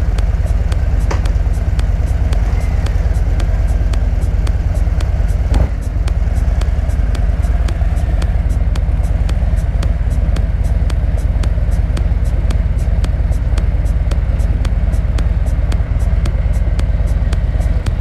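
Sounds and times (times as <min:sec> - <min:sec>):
motorcycle engine idling: 0:00.0 - 0:18.0
thump: 0:01.0 - 0:01.4.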